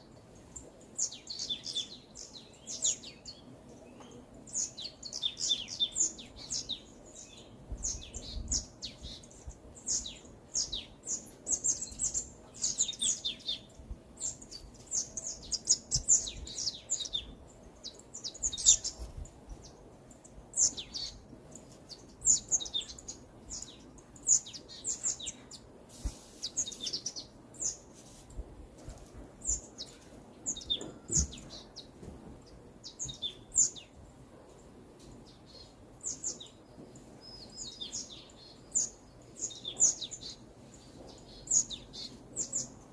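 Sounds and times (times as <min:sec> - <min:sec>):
songbirds chirping and singing: 0:00.0 - 0:42.9.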